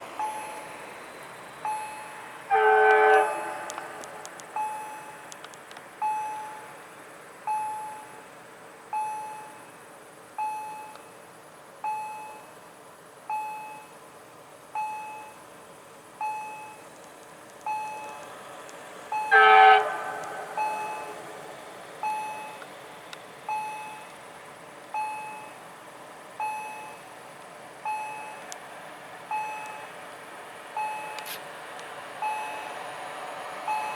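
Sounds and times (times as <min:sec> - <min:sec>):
level crossing warning bell: 0:00.2 - 0:00.9, 0:01.6 - 0:05.3, 0:06.0 - 0:06.7, 0:17.7 - 0:18.2, 0:19.1 - 0:22.6, 0:27.9 - 0:28.5, 0:29.3 - 0:29.9, 0:30.8 - 0:31.3, 0:32.2 - 0:32.8, 0:33.6 - 0:33.9
locomotive horn blasts: 0:01.9 - 0:04.4, 0:19.1 - 0:21.6.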